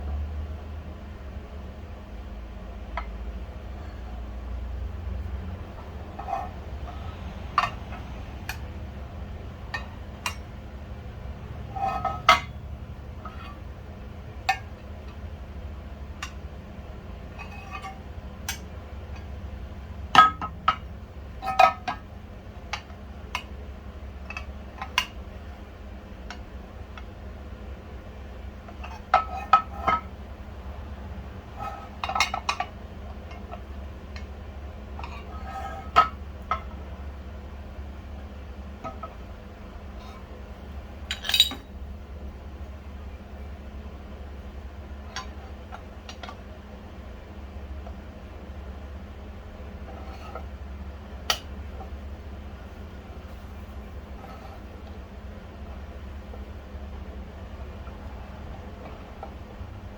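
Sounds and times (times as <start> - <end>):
steady low hum: 0.0 - 59.9
metal parts and tools clinking: 41.0 - 41.8.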